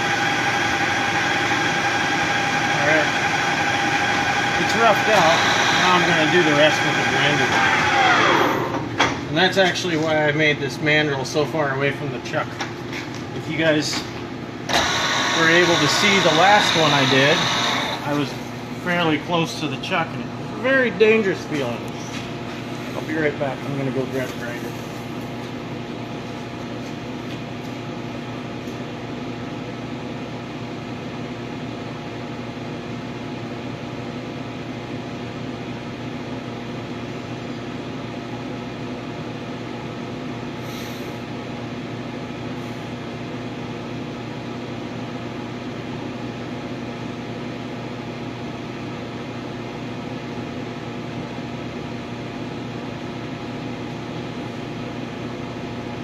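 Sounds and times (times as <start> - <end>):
motor hum: 0.0 - 9.3, 12.9 - 26.2.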